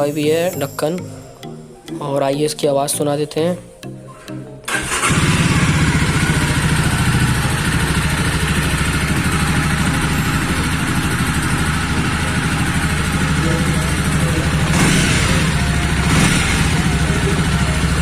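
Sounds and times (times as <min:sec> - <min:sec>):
motorcycle engine idling: 0:04.8 - 0:18.0.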